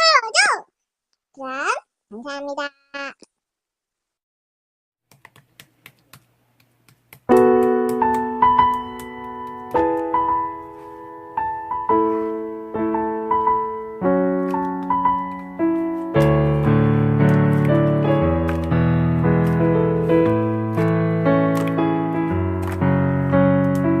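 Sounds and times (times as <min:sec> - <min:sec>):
piano chords: 0:07.3 - 0:24.0.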